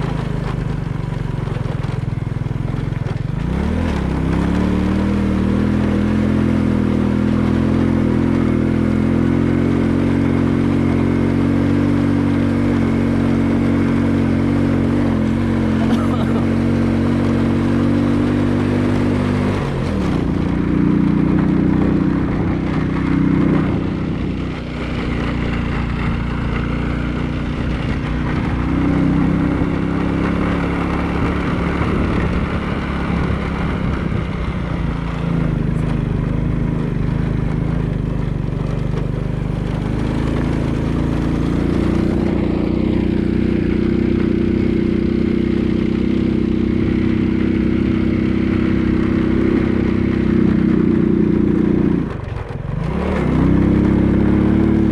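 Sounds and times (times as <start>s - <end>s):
road and wind noise: 0.0s - 54.9s
vehicle engine running: 0.0s - 54.9s.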